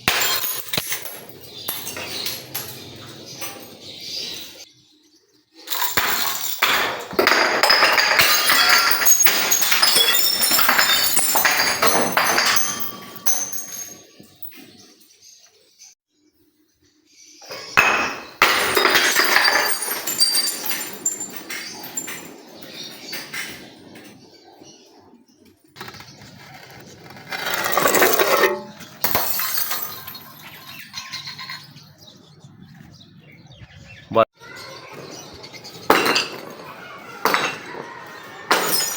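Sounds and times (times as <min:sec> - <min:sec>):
glass bottles being crushed: 0:00.0 - 0:04.6, 0:05.6 - 0:14.8, 0:17.4 - 0:24.2, 0:27.2 - 0:31.9, 0:34.8 - 0:38.9
glass shards clinking: 0:00.0 - 0:04.6, 0:05.7 - 0:14.7, 0:17.4 - 0:24.2, 0:27.3 - 0:31.9, 0:35.6 - 0:38.9.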